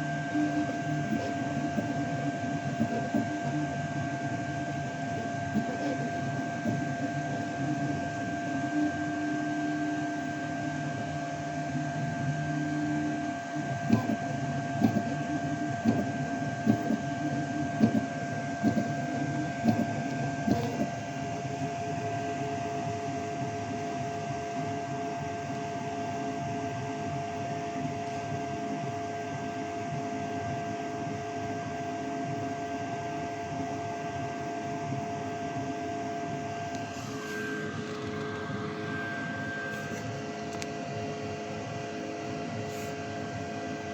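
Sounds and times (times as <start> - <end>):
low motor hum: 0.0 - 9.0, 10.3 - 21.0, 36.4 - 41.0
fan whine: 0.0 - 43.9
sharp printer ticks: 13.9 - 20.9.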